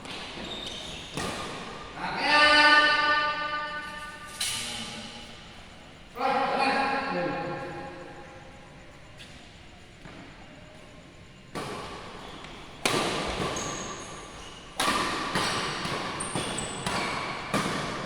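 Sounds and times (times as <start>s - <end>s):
shoes squeaking on court: 0.0s - 2.0s, 8.9s - 18.0s
rackets striking shuttlecock: 12.8s - 18.0s.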